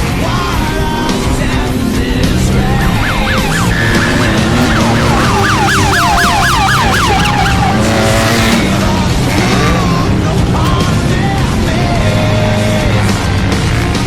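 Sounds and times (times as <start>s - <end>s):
loud music: 0.0s - 14.0s
siren-like falling wails: 2.7s - 9.8s.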